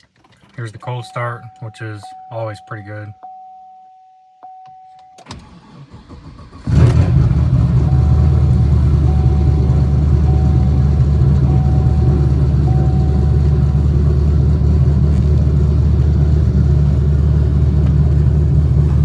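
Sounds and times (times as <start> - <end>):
ignition chime tone: 0.8 - 5.3, 7.8 - 14.1
car starter cranking: 5.2 - 16.4
car engine fast idle: 5.4 - 19.0.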